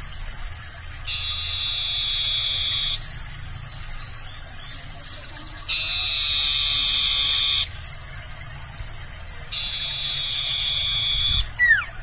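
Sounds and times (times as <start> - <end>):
owl screeching: 1.2 - 3.0, 9.6 - 12.0.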